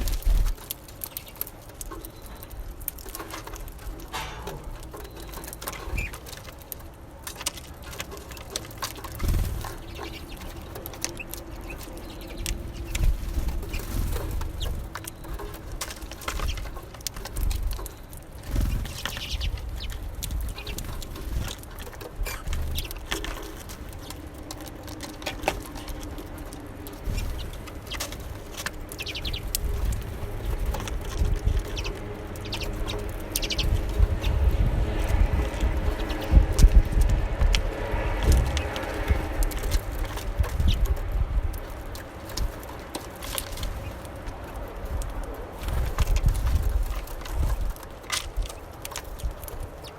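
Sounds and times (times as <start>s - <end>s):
soft bird calls: 0.0s - 6.5s, 7.8s - 24.3s, 25.1s - 36.5s
birds pecking at seed: 0.0s - 49.9s
wings fluttering: 0.0s - 49.9s.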